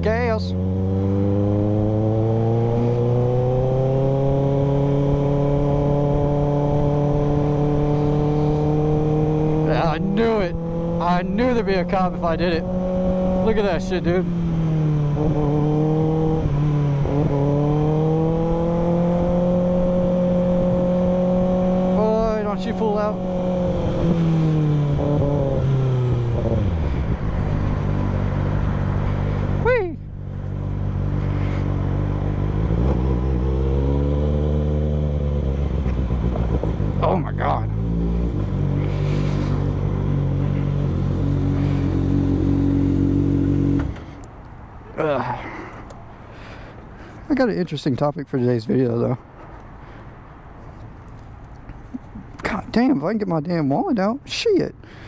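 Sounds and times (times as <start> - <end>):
motorcycle engine running: 0.0 - 44.4
wind buffeting microphone: 4.4 - 30.3.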